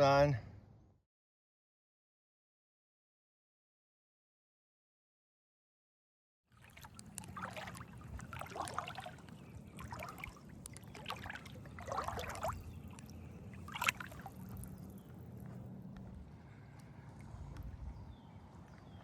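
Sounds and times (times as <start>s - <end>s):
paddle splashing in water: 6.6s - 15.2s
steady low hum: 7.0s - 19.0s.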